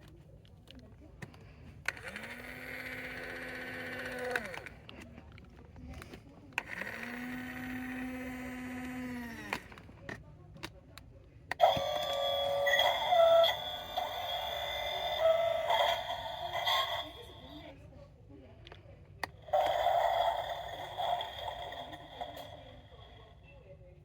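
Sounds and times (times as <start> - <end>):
toy truck mechanism whirring: 1.8 - 5.0, 6.0 - 9.9, 11.5 - 17.7, 19.2 - 23.2
electronic sound effect from toy: 11.6 - 17.2.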